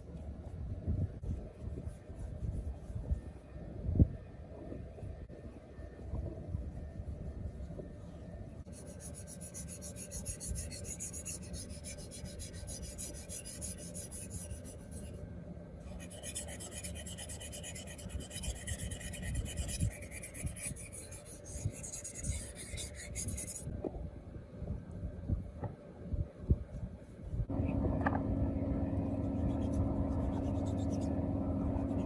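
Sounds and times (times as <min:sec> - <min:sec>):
low background rumble: 0:00.0 - 0:32.0
rasping hand filing strokes: 0:08.7 - 0:15.1, 0:15.9 - 0:23.6.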